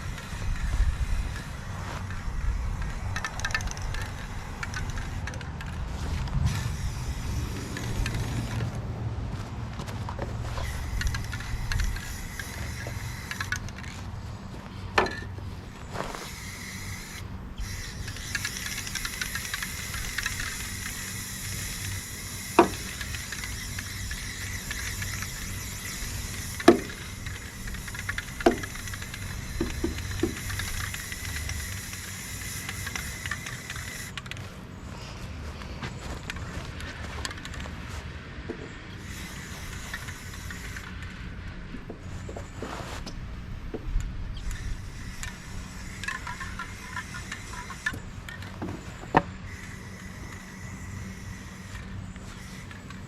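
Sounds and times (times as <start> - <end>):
sharp clicks: 0.0 - 6.7, 16.4 - 34.5
spray paint can hissing: 0.0 - 8.9, 10.3 - 14.0, 15.9 - 34.2, 38.9 - 41.3, 44.3 - 53.0.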